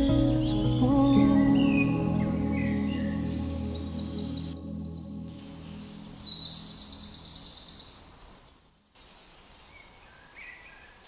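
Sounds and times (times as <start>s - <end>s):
background music: 0.0s - 7.5s
short bird chirps: 5.9s - 8.2s.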